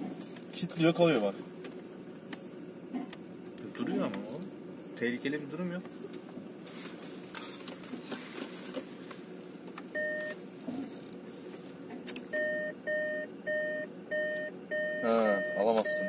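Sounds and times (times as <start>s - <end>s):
car engine running: 0.0s - 16.0s
two-tone electronic beep: 10.0s - 10.4s, 12.3s - 16.0s.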